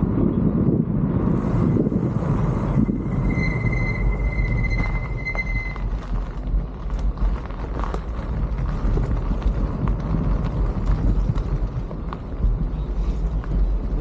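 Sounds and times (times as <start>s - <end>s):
wind buffeting microphone: 0.0s - 14.0s
high steady squeal: 1.3s - 6.6s
bicycle clicks and rattles: 5.7s - 14.0s.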